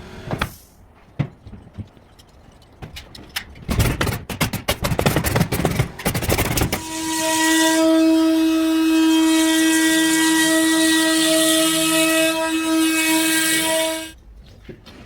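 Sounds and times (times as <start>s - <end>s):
power tool motor whine: 6.6s - 14.1s.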